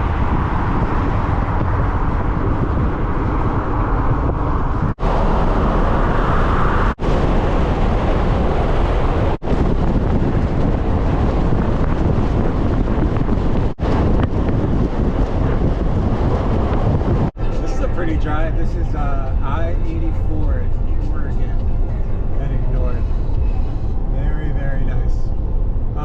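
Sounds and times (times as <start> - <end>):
truck road noise: 0.0 - 26.0
wind rush on microphone: 0.0 - 26.0.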